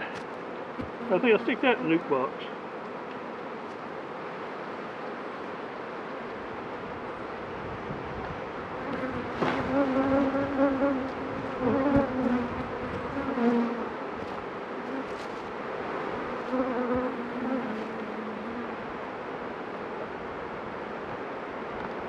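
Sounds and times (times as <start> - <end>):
bees buzzing: 0.0 - 5.7, 8.6 - 19.1
bee flying close past: 8.8 - 18.9.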